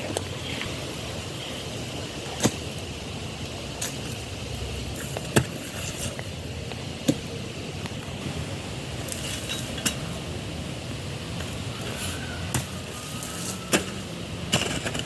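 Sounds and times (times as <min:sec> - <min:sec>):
steady low rumble: 0:00.0 - 0:13.0
hoe striking hard soil: 0:13.7 - 0:15.0.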